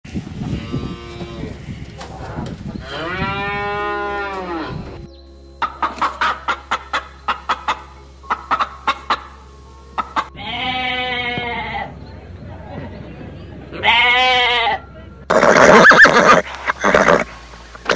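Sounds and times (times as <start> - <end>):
cow mooing: 2.8 - 4.9, 10.4 - 11.9
chickens feeding: 5.6 - 9.4
sheep bleating: 10.3 - 11.9, 13.8 - 14.8.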